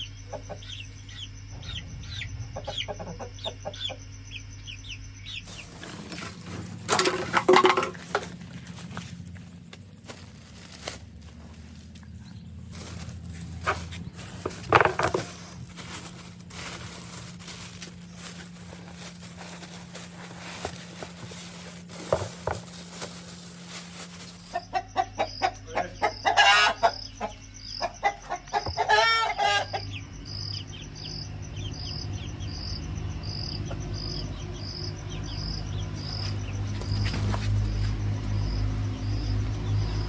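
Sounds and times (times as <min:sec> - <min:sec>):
chickens clucking and squawking: 0:00.0 - 0:09.7, 0:11.4 - 0:37.8
low hum: 0:00.0 - 0:24.5
rustling: 0:05.4 - 0:24.7.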